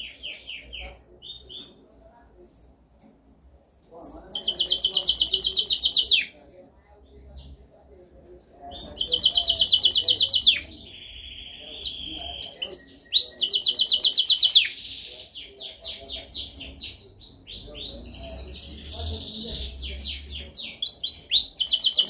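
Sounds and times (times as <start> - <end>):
canary singing: 0.0 - 1.8, 3.6 - 6.4, 8.3 - 22.0.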